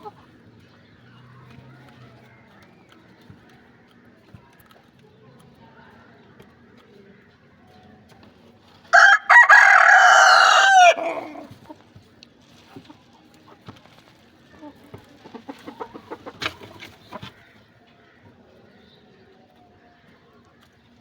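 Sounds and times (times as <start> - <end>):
chickens clucking: 0.0 - 4.0, 9.0 - 18.4
rooster crowing: 8.9 - 11.5.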